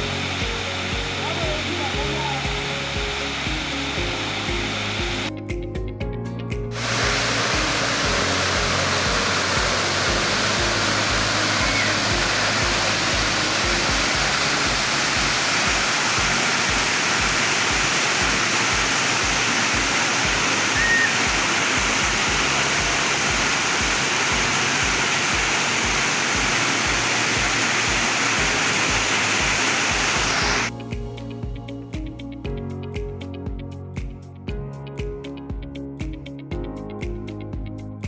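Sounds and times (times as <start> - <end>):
waterfall rushing: 0.0 - 5.3, 6.7 - 30.7
faint background music: 0.0 - 38.0
low regular beat: 2.1 - 20.4, 21.1 - 38.0.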